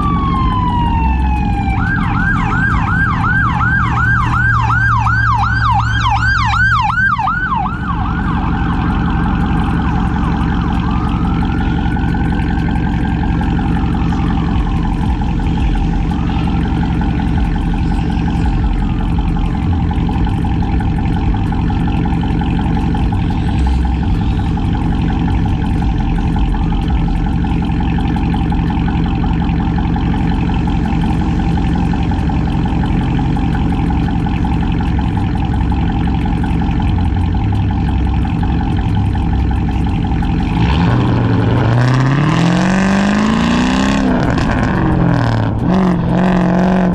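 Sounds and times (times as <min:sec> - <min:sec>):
emergency siren yelping: 0:00.0 - 0:36.9, 0:38.3 - 0:46.9
faint siren wailing: 0:00.0 - 0:37.4
car exhaust low drone: 0:00.0 - 0:46.9.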